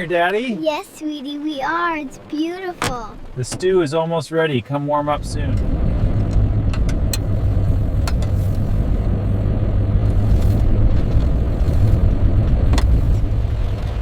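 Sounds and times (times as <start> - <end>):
vehicle rumble from inside: 4.9 - 14.0.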